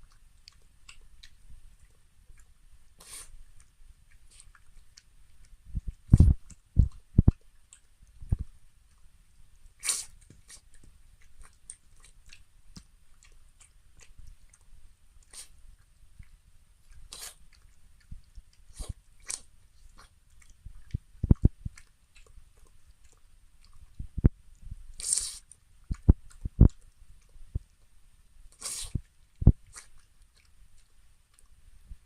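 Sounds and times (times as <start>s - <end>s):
dog chewing food: 3.4s - 9.1s, 10.0s - 24.4s, 25.0s - 27.9s.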